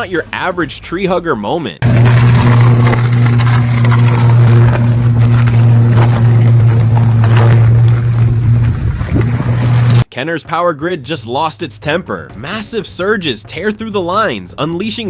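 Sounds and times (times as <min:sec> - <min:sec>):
electrical crackling snaps: 0:01.8 - 0:10.1
power line electrical buzz: 0:01.8 - 0:10.1.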